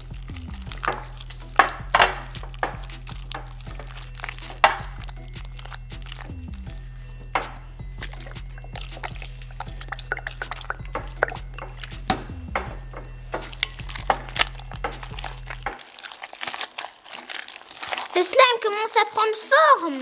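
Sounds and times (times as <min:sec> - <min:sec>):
background music with bass line: 0:00.0 - 0:15.8
spatula stirring wet slime: 0:00.0 - 0:20.0.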